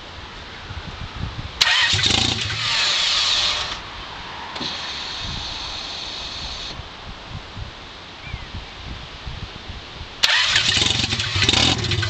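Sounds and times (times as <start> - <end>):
car engine starting: 1.6 - 6.8, 10.2 - 12.0.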